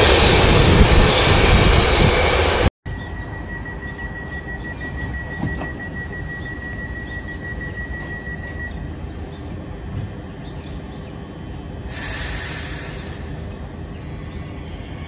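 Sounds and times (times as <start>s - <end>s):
electric train humming: 0.0s - 15.0s
compressed air hiss of brakes: 11.8s - 15.0s.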